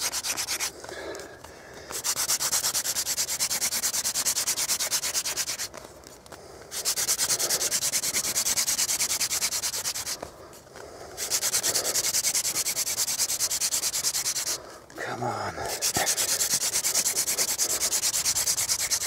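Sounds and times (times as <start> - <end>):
wooden spindle rubbing on board: 0.0 - 0.7, 1.9 - 5.8, 6.7 - 10.3, 11.2 - 14.6, 15.7 - 19.0.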